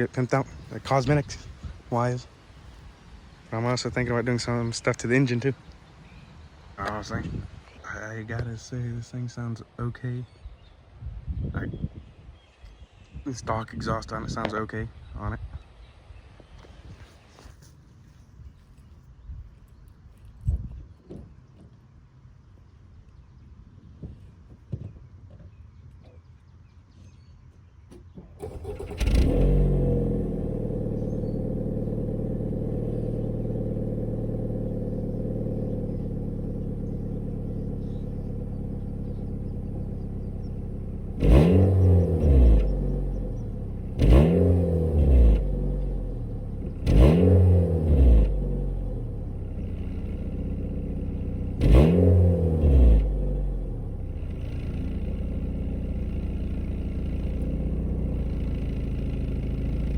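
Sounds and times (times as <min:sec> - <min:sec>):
car engine starting and idling: 0:00.0 - 0:10.0, 0:28.4 - 0:59.9
car engine revving: 0:28.4 - 0:59.9.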